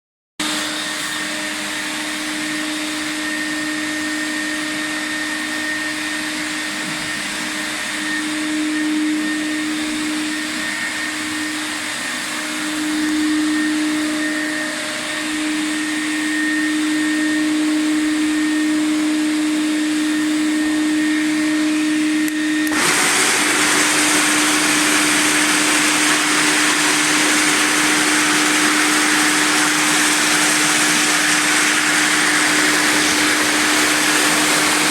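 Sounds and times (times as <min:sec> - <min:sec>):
floor sanding machine hum: 0:00.4 - 0:34.9
loud sanding hiss: 0:22.7 - 0:34.9.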